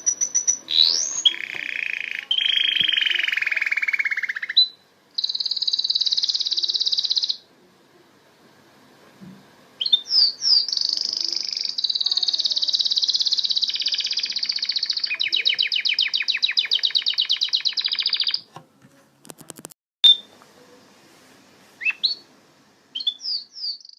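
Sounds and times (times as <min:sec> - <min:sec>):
canary singing: 0:00.0 - 0:07.5, 0:09.8 - 0:18.5, 0:21.8 - 0:22.3, 0:22.9 - 0:23.9.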